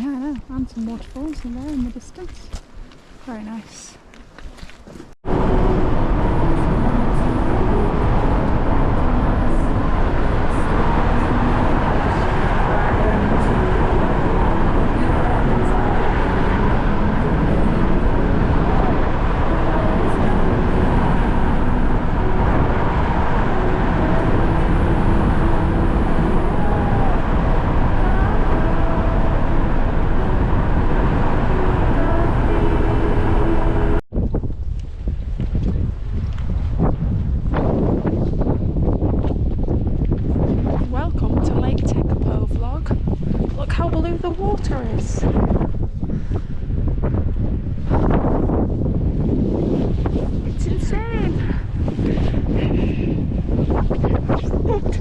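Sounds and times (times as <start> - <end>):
car road noise: 4.7 - 34.0.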